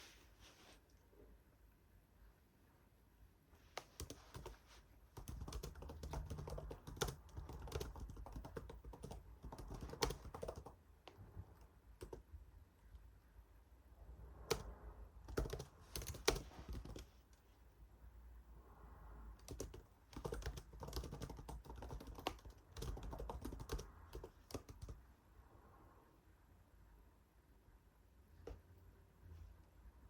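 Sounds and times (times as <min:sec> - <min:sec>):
typing on computer keyboard: 0:03.8 - 0:04.6, 0:05.2 - 0:12.3, 0:14.4 - 0:17.1, 0:19.4 - 0:25.0.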